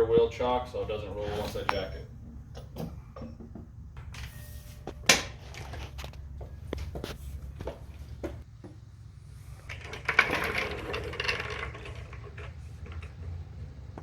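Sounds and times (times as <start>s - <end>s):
scraping rattle: 9.5s - 14.0s.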